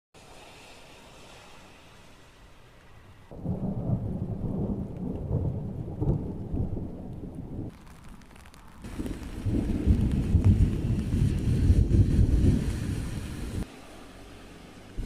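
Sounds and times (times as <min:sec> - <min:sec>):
thunder rumbling: 0:03.3 - 0:13.6.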